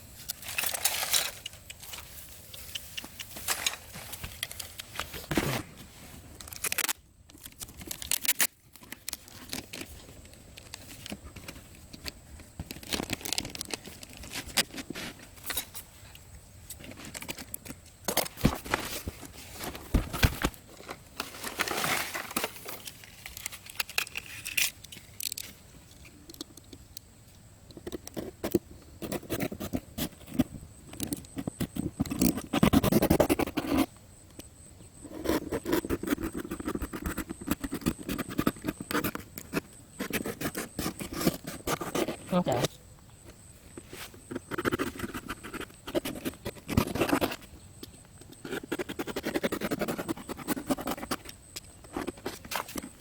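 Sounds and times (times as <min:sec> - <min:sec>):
materials crinkling and tearing: 0:06.4 - 0:11.6, 0:12.6 - 0:15.0.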